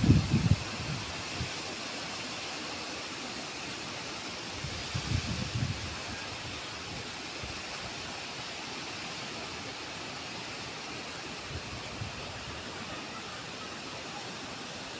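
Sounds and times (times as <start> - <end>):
wind gusts buffeting microphone: 0.0 - 1.6, 4.6 - 6.2
heavy rain: 0.0 - 14.9.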